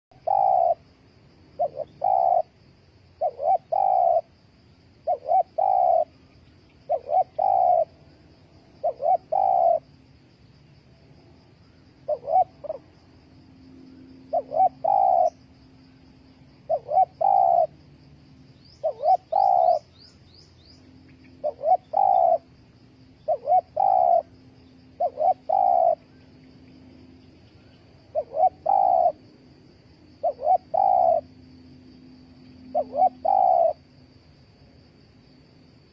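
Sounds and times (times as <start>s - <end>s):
dove cooing: 0.1s - 0.9s, 1.6s - 4.4s, 5.0s - 6.2s, 6.9s - 8.0s, 8.8s - 9.9s, 12.0s - 13.0s, 14.3s - 15.6s, 16.6s - 17.8s, 18.7s - 19.9s, 21.4s - 22.5s, 23.2s - 24.3s, 24.9s - 26.1s, 28.0s - 29.3s, 30.2s - 31.3s, 32.7s - 33.9s.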